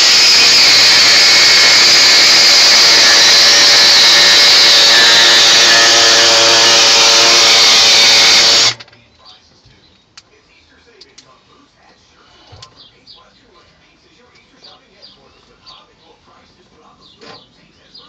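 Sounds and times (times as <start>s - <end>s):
air-powered cutting tool running: 0.0s - 8.8s.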